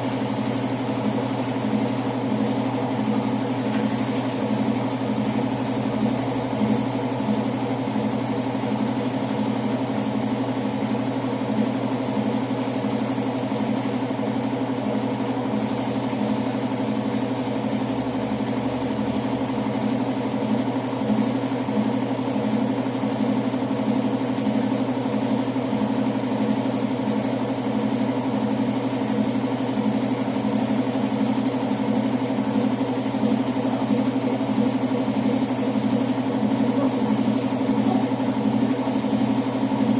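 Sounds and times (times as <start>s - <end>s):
motor running steadily: 0.0s - 39.9s.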